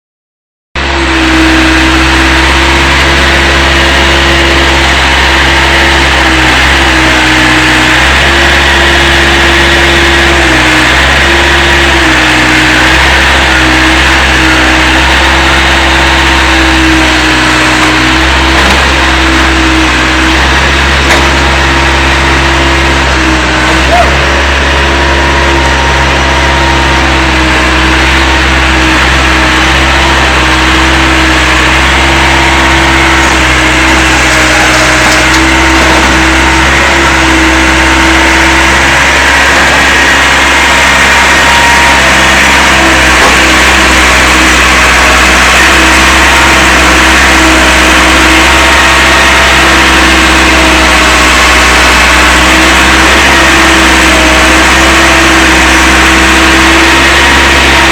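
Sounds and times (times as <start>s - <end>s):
diesel engine running steadily: 0.8s - 57.9s.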